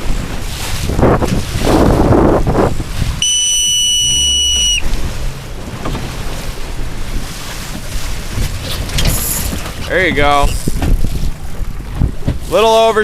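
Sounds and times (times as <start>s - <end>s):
wind buffeting microphone: 0.0s - 13.0s
high-pitched whistle blast: 3.2s - 4.8s.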